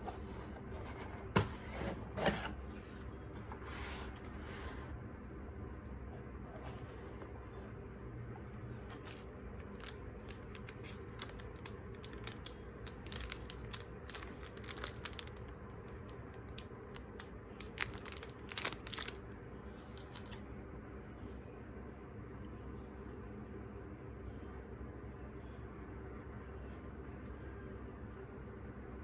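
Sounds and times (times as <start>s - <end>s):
low room hum: 0.0s - 29.0s
packaging crinkling and rustling: 8.8s - 19.3s, 19.9s - 20.4s.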